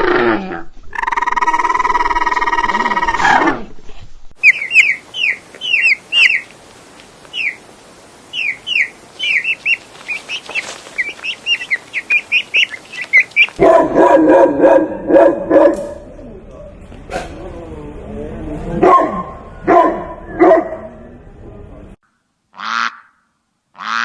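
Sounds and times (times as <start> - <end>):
low pulsing animal call: 0.0 - 3.7, 16.0 - 21.7
bird chirping: 4.4 - 6.5, 7.3 - 7.6, 8.3 - 13.6.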